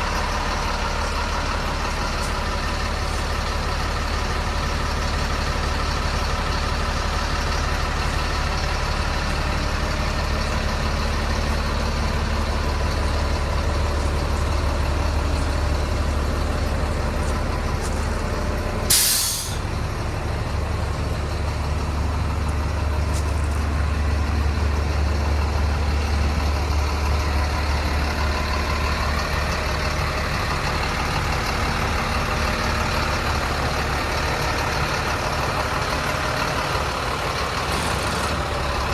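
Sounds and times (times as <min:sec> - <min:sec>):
diesel truck engine idling: 0:00.0 - 0:38.9
air hissing burst: 0:18.9 - 0:19.6.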